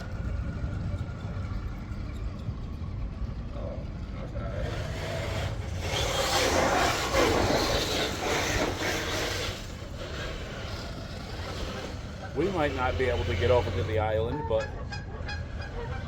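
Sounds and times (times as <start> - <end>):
steady low hum: 0.0 - 16.0
toy truck grinding over rocks: 4.3 - 16.0.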